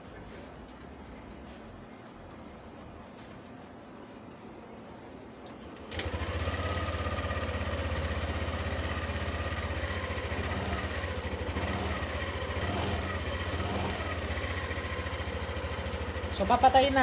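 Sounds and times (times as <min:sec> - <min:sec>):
scooter engine starting and idling: 0:05.5 - 0:17.0.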